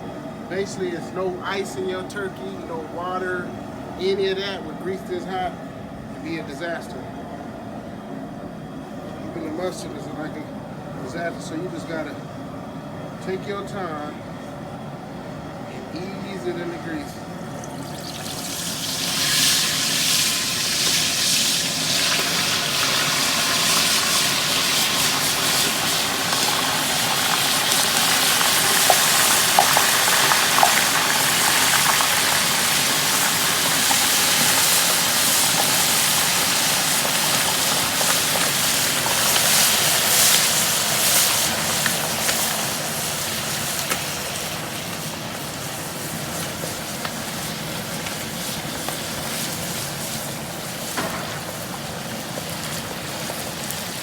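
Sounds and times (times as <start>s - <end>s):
hot oil sizzling and bubbling: 15.4s - 54.0s.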